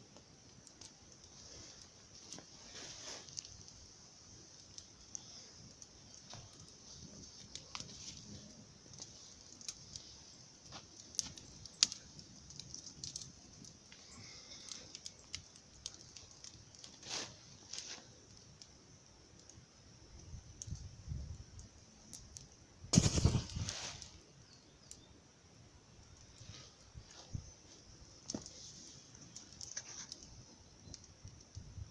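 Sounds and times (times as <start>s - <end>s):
campfire crackling: 0.0s - 31.9s
sharp fire pops: 0.1s - 18.8s, 20.2s - 25.1s.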